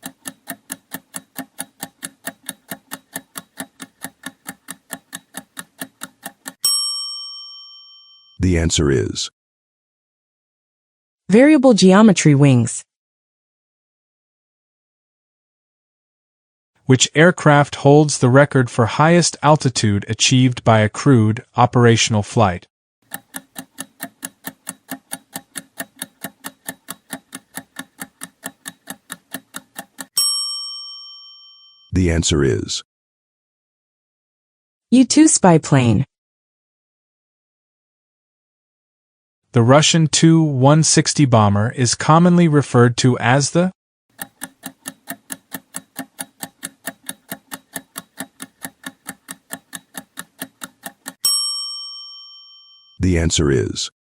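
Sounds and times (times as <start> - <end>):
clock-like timer ticks: 0.0 - 6.7, 23.0 - 30.2, 44.1 - 51.2.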